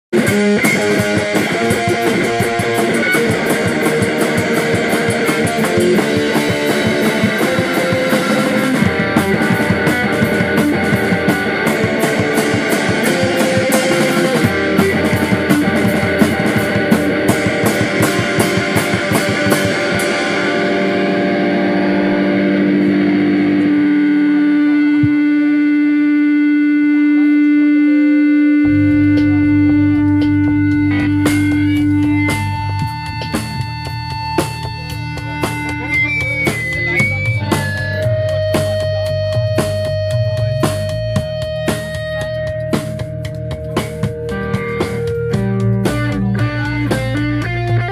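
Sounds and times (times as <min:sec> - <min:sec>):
rock band playing: 0:00.1 - 0:47.9
long held notes ringing: 0:20.0 - 0:38.4.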